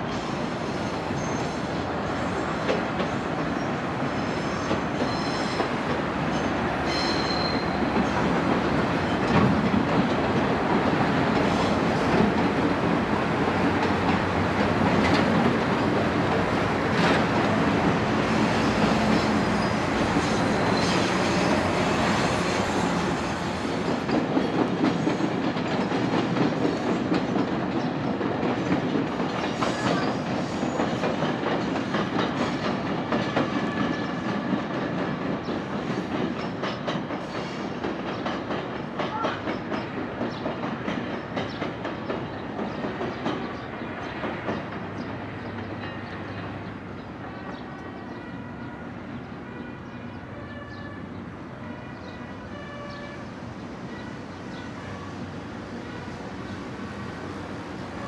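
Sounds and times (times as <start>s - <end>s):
train rumbling on rails: 0.0s - 58.0s
high squeals: 6.4s - 7.8s.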